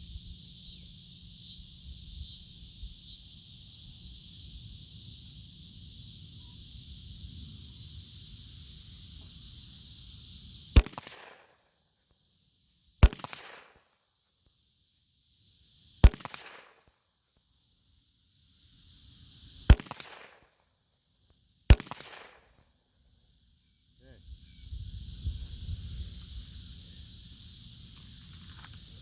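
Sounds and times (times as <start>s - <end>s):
steady high hiss: 0.0s - 29.0s
pistol shots with echo: 10.8s - 11.5s, 13.0s - 13.8s, 16.0s - 16.8s, 19.7s - 20.4s, 21.7s - 22.5s.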